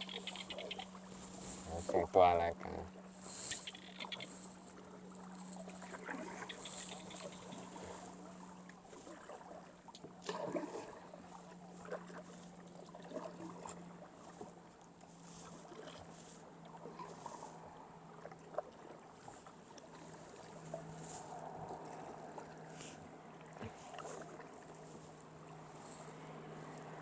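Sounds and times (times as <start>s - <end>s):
faint high-pitched animal calls: 0.0s - 1.0s, 2.6s - 4.5s, 6.3s - 7.7s
paddle splashing in water: 3.0s - 27.0s.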